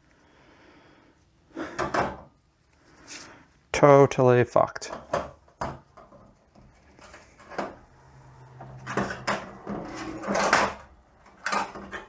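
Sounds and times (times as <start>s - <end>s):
metal parts clinking and knocking: 8.6s - 12.0s.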